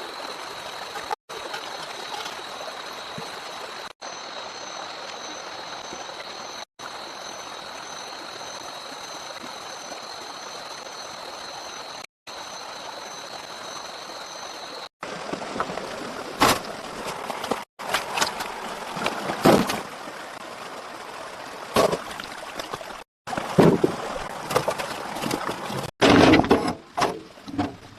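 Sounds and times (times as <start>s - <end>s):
high insect whine: 0.0s - 14.9s
running water rushing: 0.0s - 26.0s
knocks and splashes: 15.0s - 20.4s, 21.6s - 27.9s.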